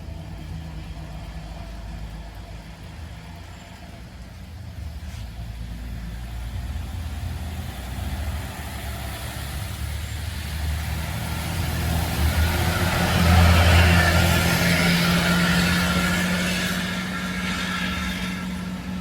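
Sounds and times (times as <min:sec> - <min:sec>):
bus engine approaching: 0:00.0 - 0:19.0
tyre noise on wet road: 0:00.0 - 0:19.0.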